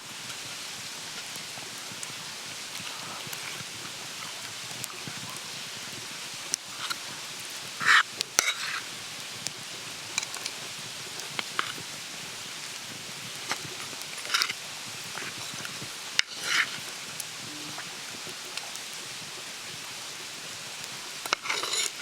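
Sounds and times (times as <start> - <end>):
steady outdoor hiss: 0.0 - 22.0
utensils scraping a dish: 16.2 - 16.8, 21.3 - 22.0.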